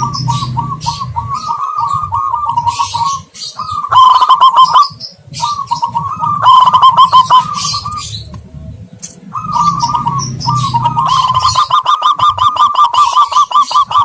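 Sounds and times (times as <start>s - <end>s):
low rumble: 0.0s - 3.9s, 5.2s - 11.7s
doves cooing: 0.0s - 14.0s
small birds chirping: 0.0s - 14.0s.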